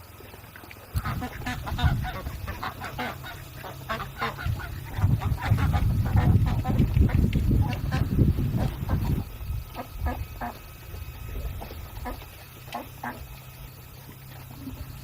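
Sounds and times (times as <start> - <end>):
fowl calling: 1.0 - 10.6, 11.6 - 13.4
low rumble: 1.0 - 12.7.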